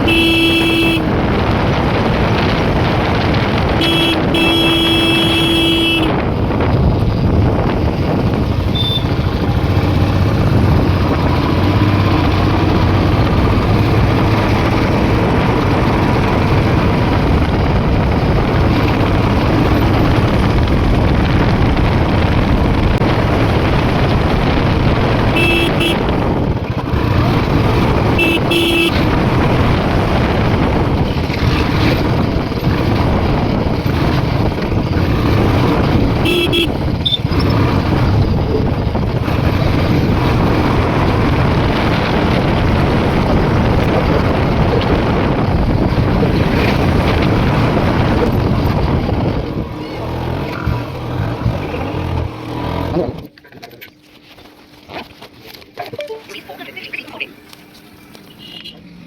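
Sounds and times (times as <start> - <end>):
horn beeping: 0.0 - 1.2, 3.7 - 6.4, 8.6 - 9.3, 25.1 - 26.4, 28.1 - 29.2, 36.2 - 37.4, 58.3 - 58.9
motorcycle engine and road noise: 0.0 - 59.0.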